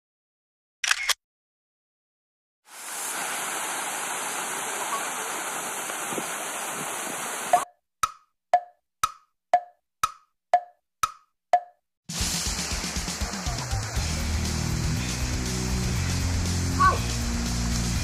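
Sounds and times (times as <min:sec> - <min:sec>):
river rushing: 0:02.7 - 0:07.6
wood-block-like tick: 0:07.5 - 0:11.8
backing music track: 0:12.1 - 0:18.0.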